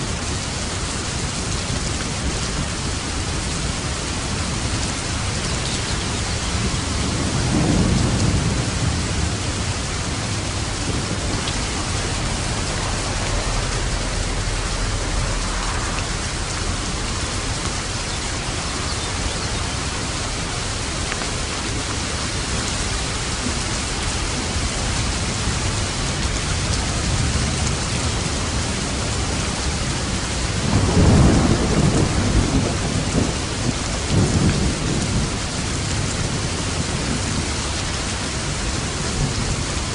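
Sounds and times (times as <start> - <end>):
heavy rain: 0.0 - 39.9
thunder rumbling: 0.1 - 39.9.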